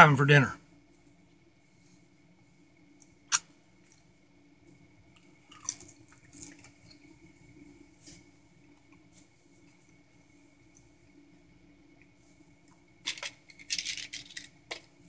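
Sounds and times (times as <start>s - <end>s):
faint steady hum: 0.0s - 15.0s
man chewing food: 5.2s - 7.1s.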